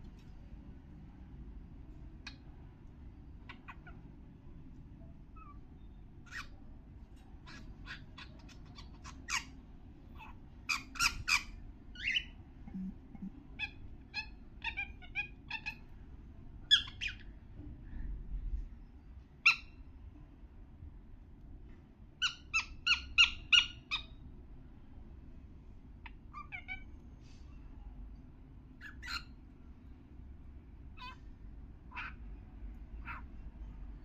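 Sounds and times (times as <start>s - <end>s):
cockatiel chirps and squawks: 3.4s - 4.1s, 5.4s - 6.6s, 7.4s - 12.4s, 13.5s - 15.9s, 16.6s - 17.3s, 19.4s - 19.8s, 22.2s - 24.2s, 26.0s - 26.9s, 28.8s - 29.4s, 30.9s - 31.3s, 31.9s - 32.3s, 33.0s - 33.4s.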